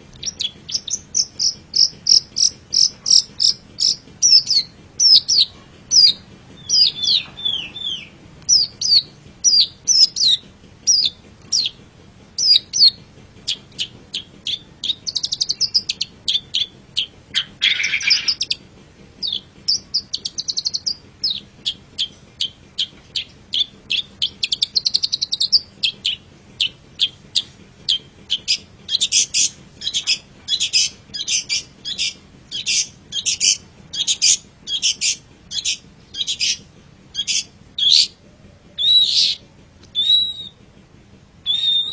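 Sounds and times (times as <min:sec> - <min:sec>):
harsh rasping bird call: 0:00.2 - 0:11.8, 0:12.4 - 0:18.6, 0:37.2 - 0:38.2, 0:38.8 - 0:40.6
shrike singing high chirps: 0:41.4 - 0:41.9.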